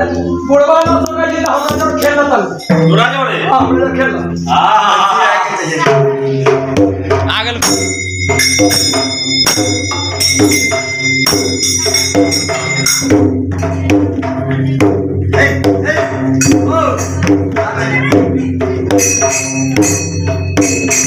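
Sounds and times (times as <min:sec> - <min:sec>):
drum beat: 0:00.6 - 0:04.5, 0:05.6 - 0:21.0
hand cymbals clashing: 0:07.6 - 0:14.4, 0:18.6 - 0:21.0.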